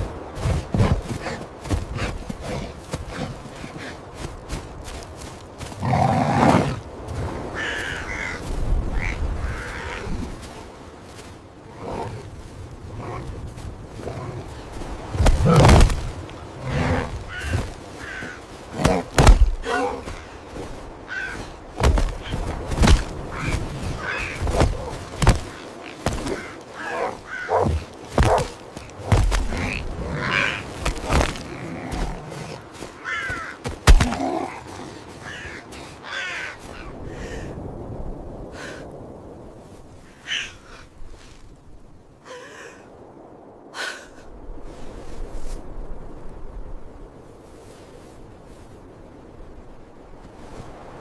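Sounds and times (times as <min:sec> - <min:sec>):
crow cawing: 0:07.5 - 0:10.0, 0:15.3 - 0:37.5, 0:40.2 - 0:40.8
heavy thuds: 0:15.1 - 0:20.2, 0:21.8 - 0:30.0, 0:30.7 - 0:34.3.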